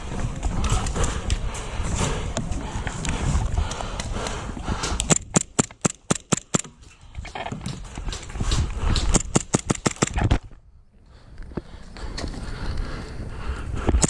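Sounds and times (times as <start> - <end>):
movement noise: 0.0 - 10.6
airsoft gun firing: 5.1 - 6.8, 9.0 - 10.3.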